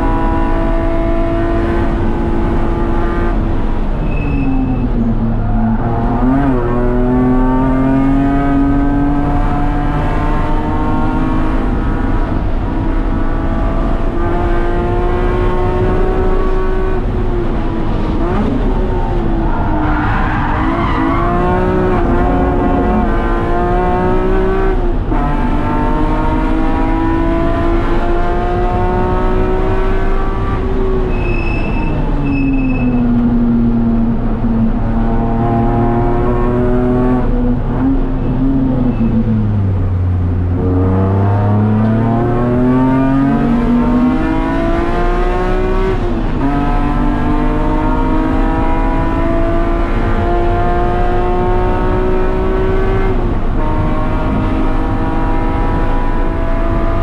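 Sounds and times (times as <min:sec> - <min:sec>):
car engine running hard: 0:00.0 - 0:57.0
tyre squeal: 0:03.9 - 0:06.4, 0:19.5 - 0:22.3, 0:31.1 - 0:33.2.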